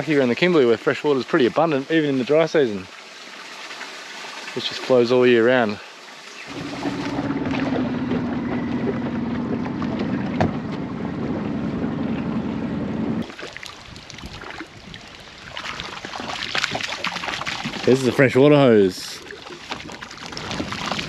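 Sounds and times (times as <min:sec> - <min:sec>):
outboard motor running: 0:06.5 - 0:13.3.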